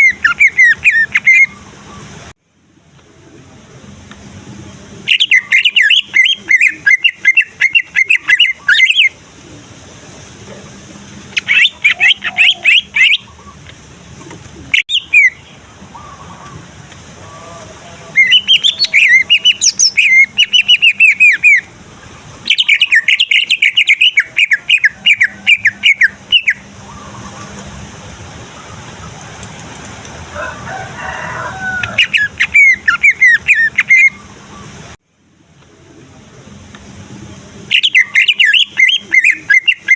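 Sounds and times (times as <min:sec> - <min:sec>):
bird singing rapid high notes: 0:05.0 - 0:09.2, 0:18.1 - 0:21.7, 0:22.4 - 0:27.2, 0:37.7 - 0:39.9.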